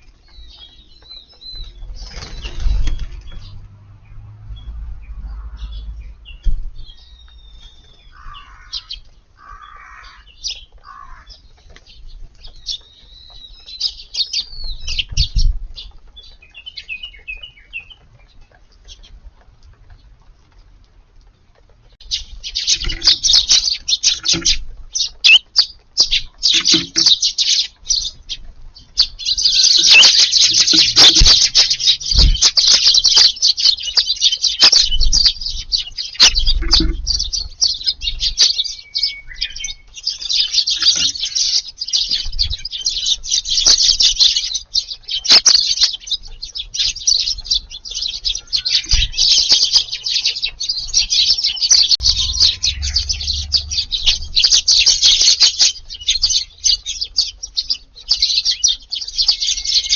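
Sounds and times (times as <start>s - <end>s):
sparrows chirping: 0.0s - 20.5s, 21.5s - 59.9s
wing flutters: 1.6s - 3.8s.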